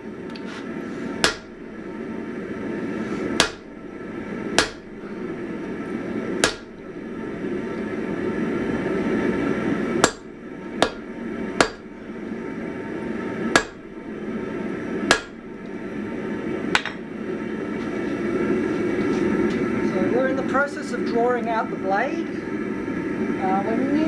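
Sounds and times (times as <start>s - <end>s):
sledgehammer striking steel on anvil: 1.2s - 1.6s, 3.4s - 3.8s, 4.6s - 5.0s, 6.4s - 6.9s, 10.0s - 11.9s, 13.6s - 14.0s, 15.1s - 15.5s.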